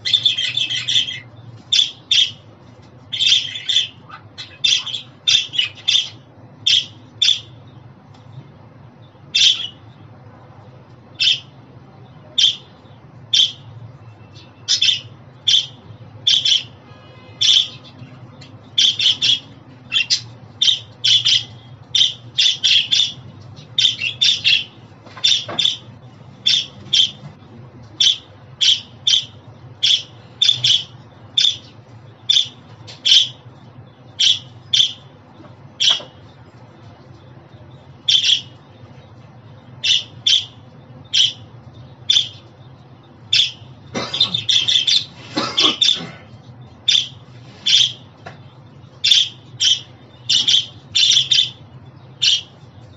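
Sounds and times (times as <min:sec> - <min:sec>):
budgerigars squawking: 0:00.0 - 0:02.4, 0:03.1 - 0:07.5, 0:13.3 - 0:13.6, 0:14.7 - 0:18.0, 0:18.8 - 0:27.2, 0:28.0 - 0:31.7, 0:32.3 - 0:33.4, 0:34.2 - 0:35.0, 0:38.1 - 0:38.5, 0:39.8 - 0:41.4, 0:43.3 - 0:46.1, 0:46.9 - 0:48.0, 0:49.0 - 0:51.6, 0:52.2 - 0:52.6
low steady hum: 0:00.0 - 0:52.9.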